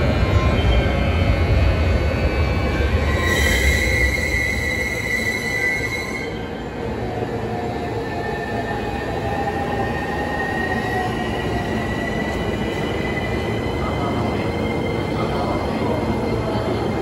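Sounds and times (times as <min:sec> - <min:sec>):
high wheel squeal: 0:03.1 - 0:06.4.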